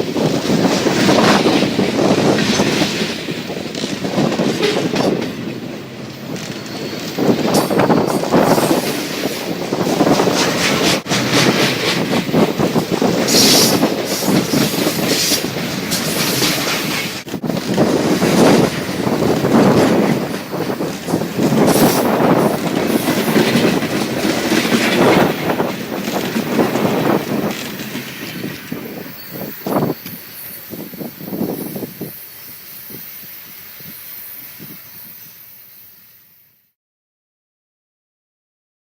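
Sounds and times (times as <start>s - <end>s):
train wheels clattering over rail joints: 0.0s - 32.2s
train wheel squeal: 6.2s - 12.0s, 12.8s - 17.2s, 18.2s - 36.7s.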